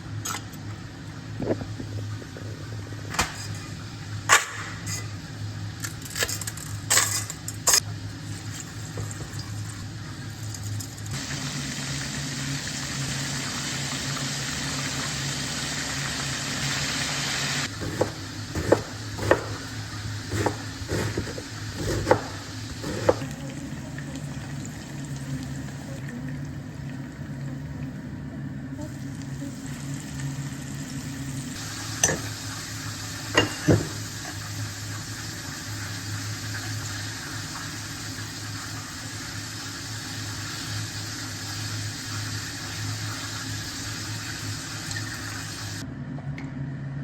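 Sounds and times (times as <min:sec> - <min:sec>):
steady low hum: 0:00.0 - 0:05.8, 0:17.6 - 0:34.3
tap running: 0:17.7 - 0:23.4
utensils and dishes knocking: 0:17.8 - 0:19.7, 0:20.3 - 0:23.3, 0:33.4 - 0:34.0.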